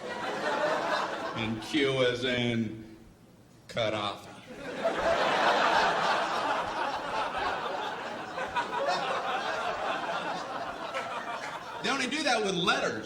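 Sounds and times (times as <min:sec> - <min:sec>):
audience laughing: 0:00.0 - 0:01.5, 0:04.5 - 0:12.2.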